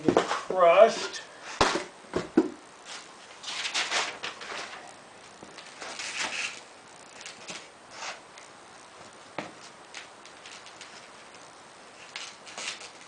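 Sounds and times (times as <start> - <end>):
rustling and scraping of packaging: 2.8 - 8.4, 9.5 - 13.0.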